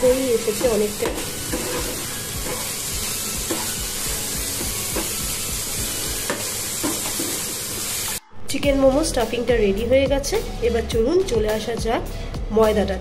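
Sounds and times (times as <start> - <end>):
meat sizzling in a pan: 0.0 - 8.2
background music with low beat: 0.0 - 13.0.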